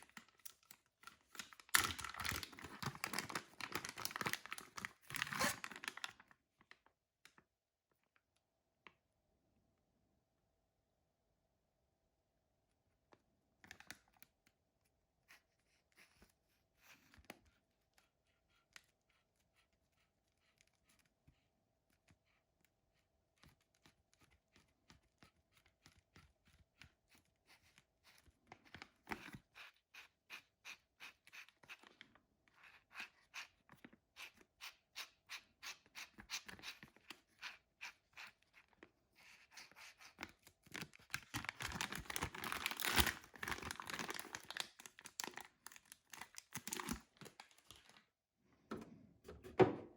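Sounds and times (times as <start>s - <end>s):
packaging rustling: 0.0s - 6.8s, 40.6s - 48.0s.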